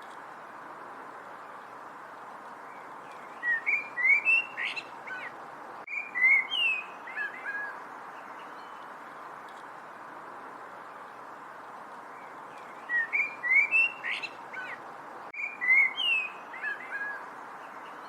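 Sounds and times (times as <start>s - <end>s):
steady background hiss: 0.0s - 18.0s
songbird chirping: 2.5s - 9.8s, 10.9s - 18.0s.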